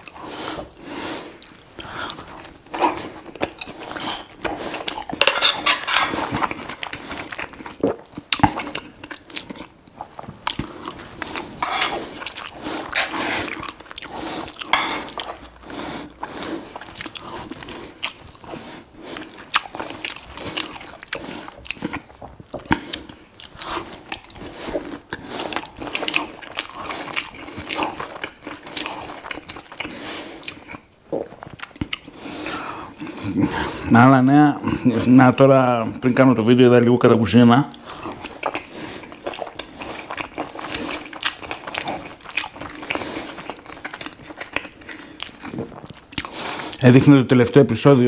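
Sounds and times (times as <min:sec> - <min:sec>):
close chewing and biting: 0:00.0 - 0:34.0, 0:37.7 - 0:46.8
knife and fork on plate: 0:05.2 - 0:06.2, 0:11.6 - 0:12.0.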